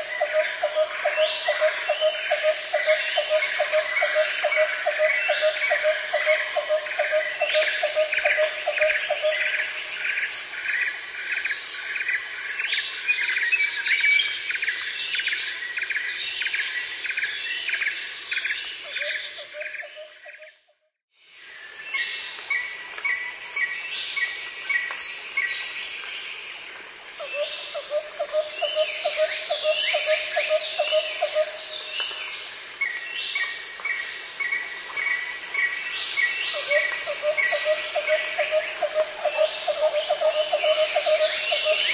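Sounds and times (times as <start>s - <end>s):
insects and frogs trilling: 0.0s - 41.9s
birds chirping and calling: 35.6s - 41.9s.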